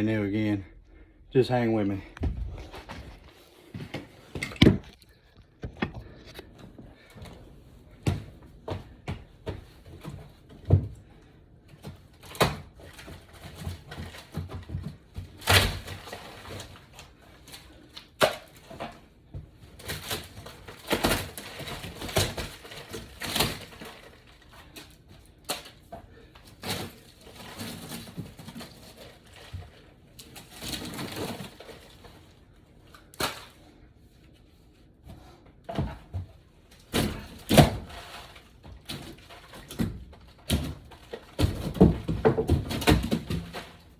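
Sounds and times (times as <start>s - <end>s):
knocks and thuds on wood floor: 3.8s - 5.0s, 39.6s - 43.8s.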